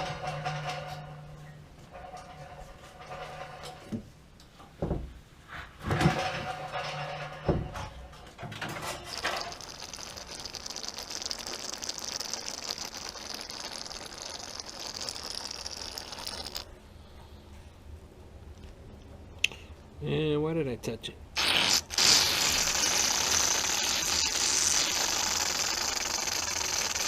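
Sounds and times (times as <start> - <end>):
knocks: 5.8 - 8.7.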